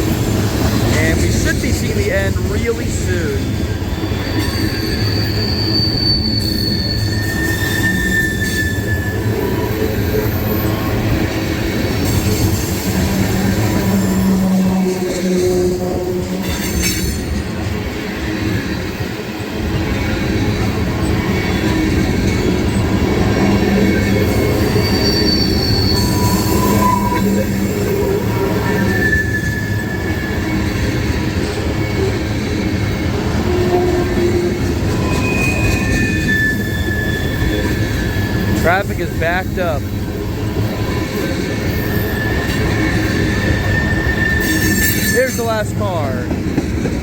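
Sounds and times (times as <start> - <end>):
train wheels rumbling on rail: 0.0 - 47.0
high-pitched wheel squeals: 3.4 - 17.4, 21.2 - 38.7, 40.6 - 45.7.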